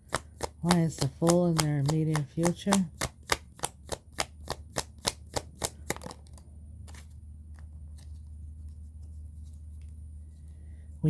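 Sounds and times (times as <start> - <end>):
cards being shuffled: 0.0 - 9.9
low steady hum: 0.0 - 11.0
faint card taps: 0.1 - 6.1.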